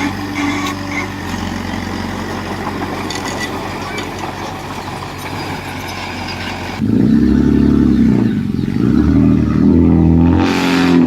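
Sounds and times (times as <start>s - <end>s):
metallic clanks and rattles: 0.0s - 6.8s
heavy diesel engine running: 0.0s - 11.0s.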